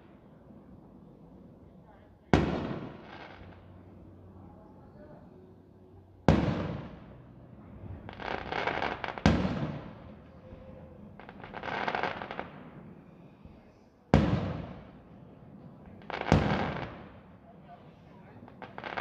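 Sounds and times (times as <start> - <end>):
crackling fireworks pops: 7.9 - 15.1, 15.9 - 17.2.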